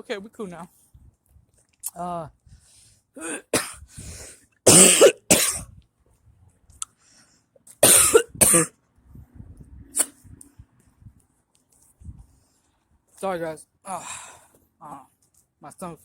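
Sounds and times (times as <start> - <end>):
man coughing hard: 3.2 - 3.8, 4.7 - 5.7, 7.8 - 8.7.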